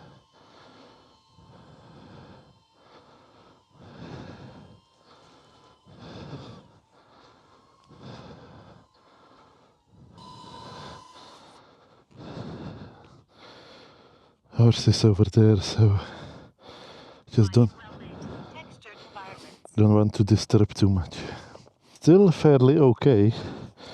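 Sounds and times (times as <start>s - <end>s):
faint thin whine: 0.0s - 13.1s
person breathing heavily: 0.0s - 19.8s, 20.8s - 22.4s, 23.1s - 23.9s.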